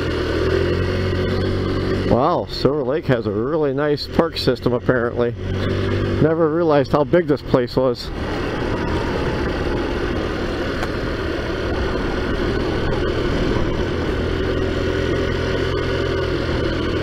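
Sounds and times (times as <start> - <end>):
scooter engine running steadily: 0.0 - 17.0.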